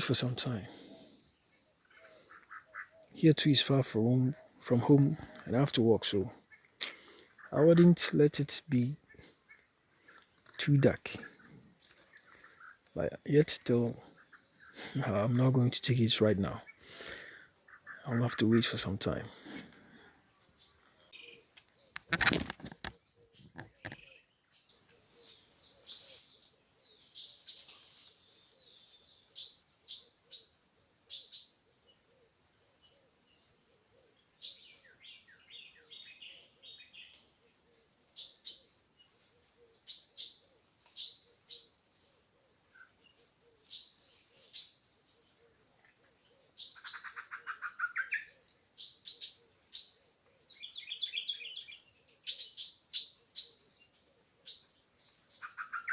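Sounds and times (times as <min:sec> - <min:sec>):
crickets chirping: 0:00.0 - 0:55.9
trilling bird calls: 0:00.0 - 0:55.9.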